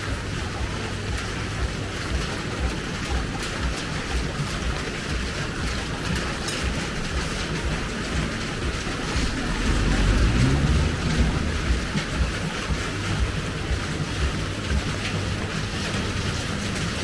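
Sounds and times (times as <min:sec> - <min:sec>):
rain falling on street: 0:00.0 - 0:17.0
low rumble: 0:07.6 - 0:16.5.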